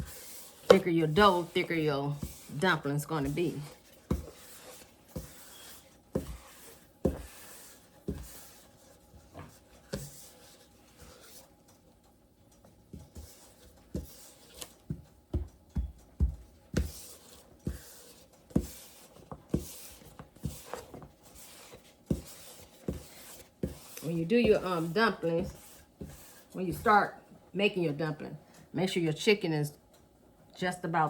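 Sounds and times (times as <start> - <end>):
rolling pin knocking on dough: 0.0 - 8.4, 13.0 - 27.0
rolling pin rubbing dough: 0.0 - 12.0, 12.6 - 27.2.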